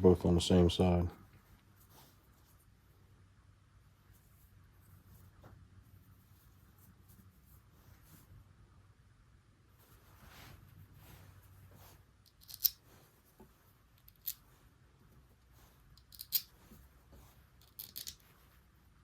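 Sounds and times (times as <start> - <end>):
faint rustling and rubbing: 0.8 - 3.2, 3.8 - 8.8, 9.6 - 19.0.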